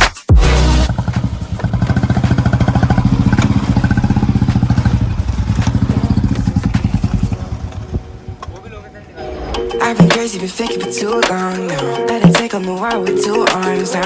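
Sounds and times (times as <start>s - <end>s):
engine running with rapid pulse: 0.3s - 9.6s.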